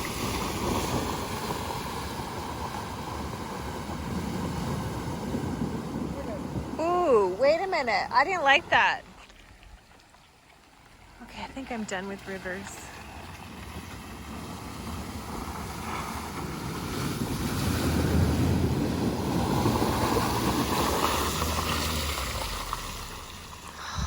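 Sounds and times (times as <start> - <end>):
tyres rumbling: 0.0 - 24.0
water splashing against car: 0.0 - 24.0.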